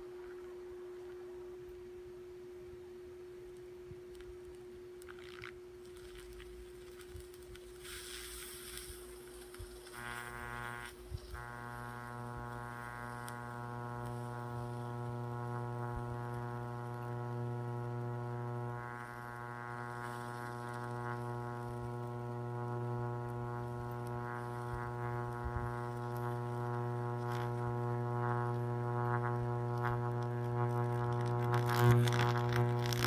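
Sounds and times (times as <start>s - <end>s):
electric crackles: 5.0s - 33.0s
high-voltage arc buzzing: 5.0s - 33.0s
transformer hum: 6.4s - 33.0s.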